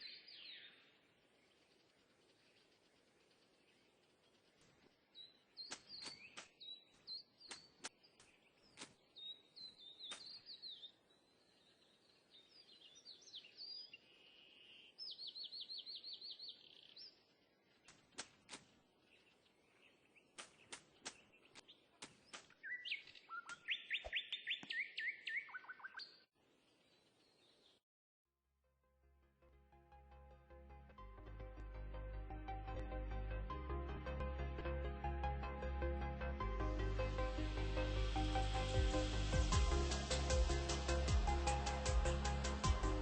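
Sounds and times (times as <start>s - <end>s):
small birds chirping: 0.0s - 27.8s.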